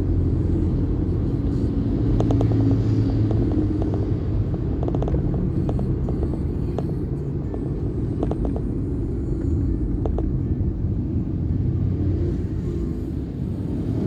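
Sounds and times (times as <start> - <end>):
vehicle rumbling along a road: 0.0 - 14.0
light ticks and rattles: 0.1 - 10.4.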